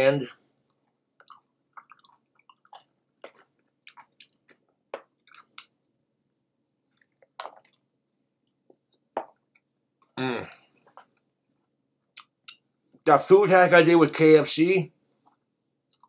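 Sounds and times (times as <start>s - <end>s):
person chewing food: 0.6s - 10.2s, 12.0s - 13.0s, 15.2s - 16.0s.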